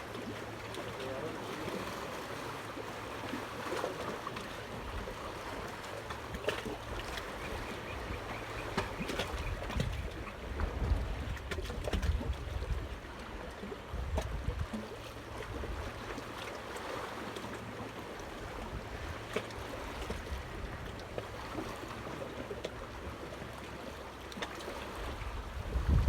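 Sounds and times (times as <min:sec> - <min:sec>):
moving water: 0:00.0 - 0:26.0
wind buffeting microphone: 0:08.0 - 0:12.9, 0:25.2 - 0:26.0.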